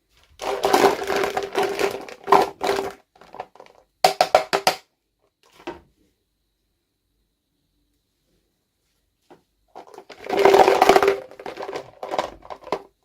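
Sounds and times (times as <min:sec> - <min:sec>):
packaging rustling and scraping: 0:00.2 - 0:03.5, 0:09.8 - 0:12.8.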